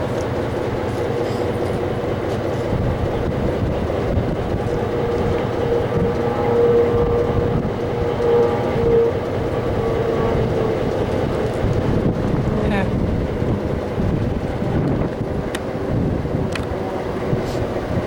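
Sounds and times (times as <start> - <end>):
locomotive rumbling: 0.0 - 18.0
wavering held tone: 4.5 - 11.6.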